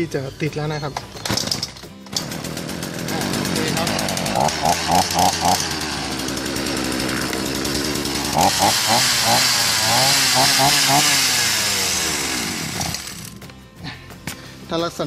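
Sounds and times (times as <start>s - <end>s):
chainsaw engine running unevenly: 1.3s - 14.0s.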